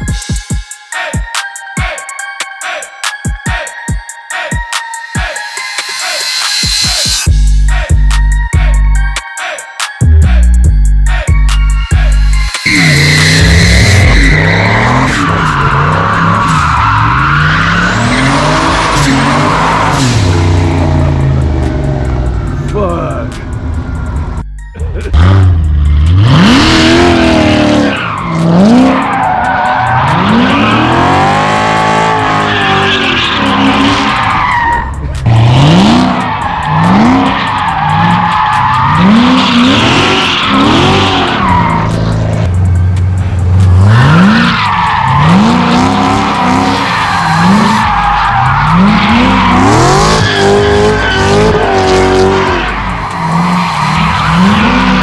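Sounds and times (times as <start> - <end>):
tires squealing: 11.5 - 24.4, 25.0 - 55.0
pickup engine revving hard: 25.2 - 29.0, 29.8 - 42.4, 43.4 - 55.0.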